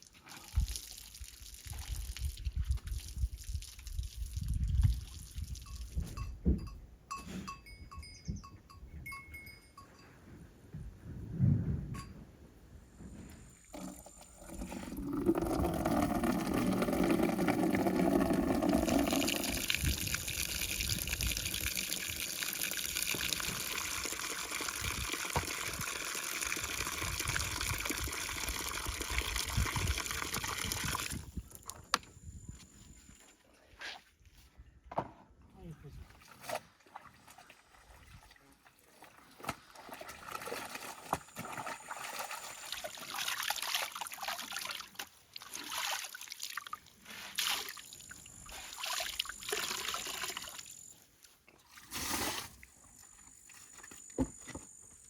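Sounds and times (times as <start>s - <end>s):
liquid pouring into container: 13.7s - 31.3s.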